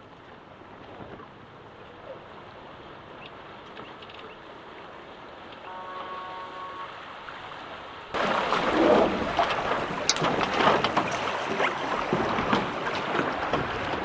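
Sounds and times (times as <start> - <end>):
water splashing: 0.0 - 14.0
wind buffeting microphone: 8.1 - 14.0.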